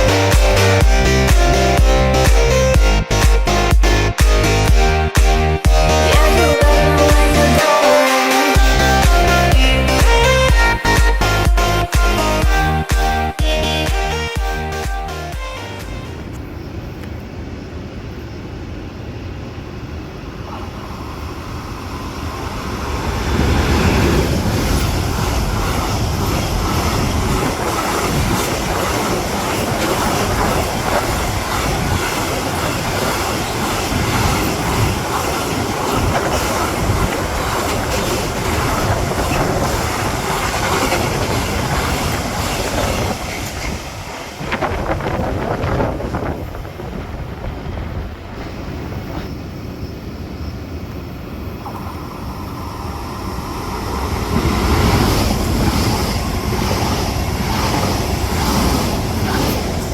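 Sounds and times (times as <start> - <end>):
train wheels on rails: 15.8 - 59.9.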